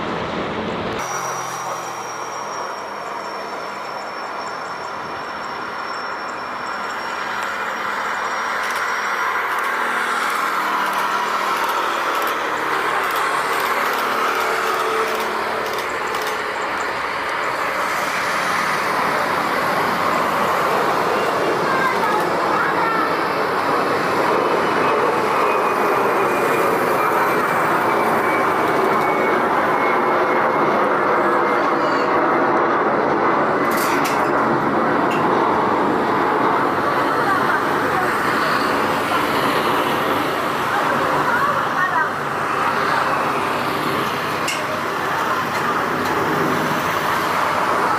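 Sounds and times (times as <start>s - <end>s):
vehicle noise roaring: 0.0s - 47.9s
faint voices: 36.3s - 47.9s.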